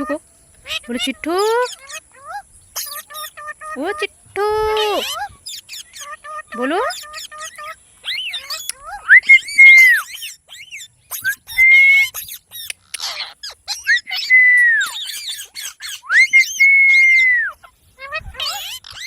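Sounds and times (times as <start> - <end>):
parrot chirps: 0.0 - 4.1, 4.8 - 19.0
parrot squawk: 0.6 - 4.0, 4.8 - 19.0
parrot whistling: 8.1 - 17.6.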